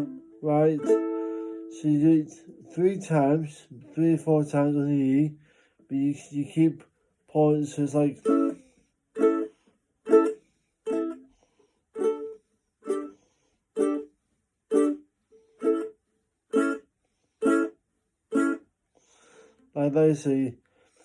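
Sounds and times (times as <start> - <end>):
ukulele short strums: 0.0 - 1.8.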